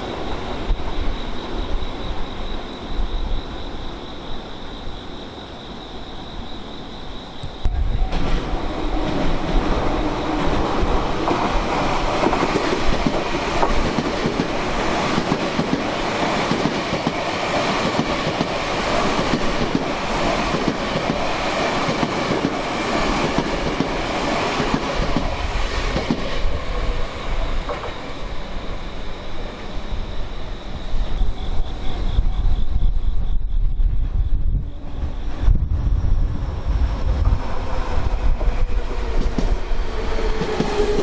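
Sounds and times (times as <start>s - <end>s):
electric train passing: 0.0s - 41.0s
wind buffeting microphone: 7.4s - 28.2s, 29.4s - 41.0s
train wheels clattering over rails: 8.0s - 28.4s, 37.2s - 41.0s.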